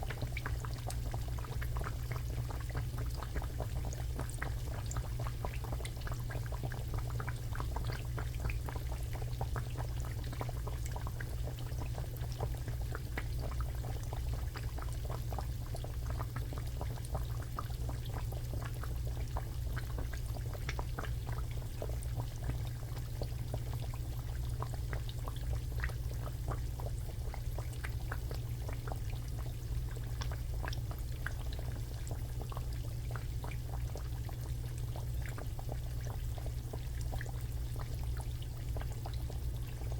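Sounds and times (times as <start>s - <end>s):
food frying in hot oil: 0.0s - 39.9s.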